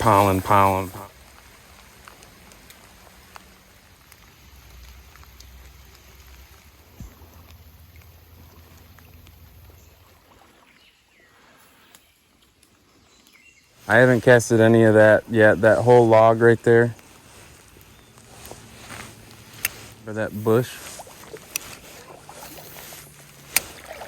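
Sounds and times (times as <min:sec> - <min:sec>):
stream water running: 0:00.0 - 0:24.0
light ticks: 0:01.1 - 0:10.1, 0:16.9 - 0:24.0.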